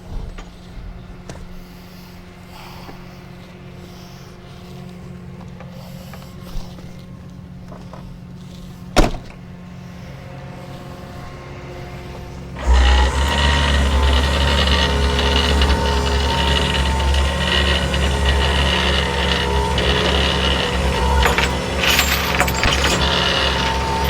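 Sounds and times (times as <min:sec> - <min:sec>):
truck engine idling: 0:12.4 - 0:24.0
mechanical drone with whine: 0:12.5 - 0:24.0.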